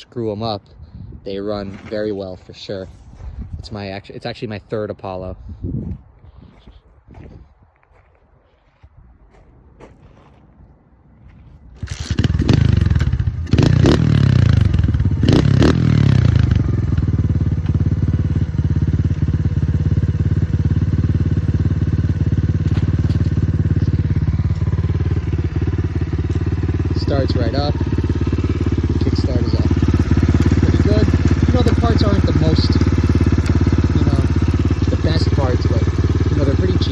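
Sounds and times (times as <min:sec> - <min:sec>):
dirt bike engine revving and idling: 0:01.6 - 0:03.9, 0:11.8 - 0:36.9.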